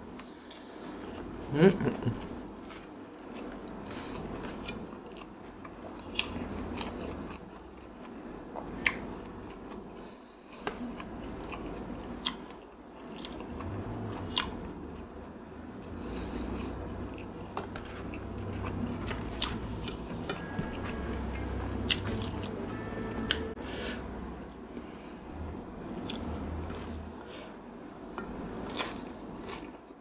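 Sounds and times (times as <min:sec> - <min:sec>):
person chewing with mouth smacks: 0:16.4 - 0:22.6, 0:28.2 - 0:29.9.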